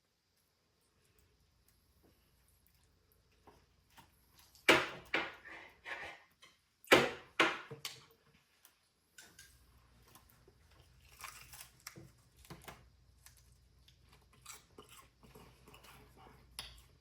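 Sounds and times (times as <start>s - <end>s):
crunchy dried beef chewing: 10.0s - 17.0s.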